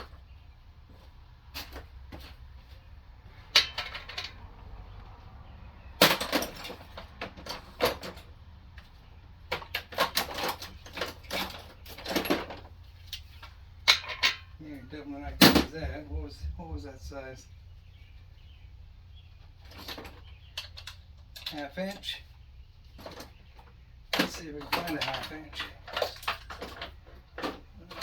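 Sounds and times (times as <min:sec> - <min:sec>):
faint low hum: 0:00.0 - 0:28.0
metal tools clinking: 0:03.5 - 0:04.4, 0:06.0 - 0:08.3, 0:09.5 - 0:14.6, 0:24.1 - 0:28.0.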